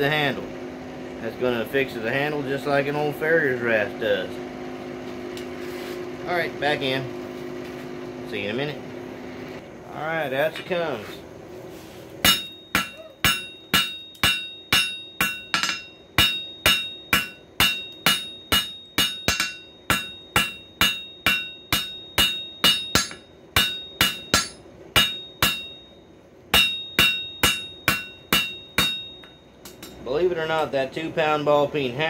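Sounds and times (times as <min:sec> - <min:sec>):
hammer striking steel on anvil: 0:12.2 - 0:30.7.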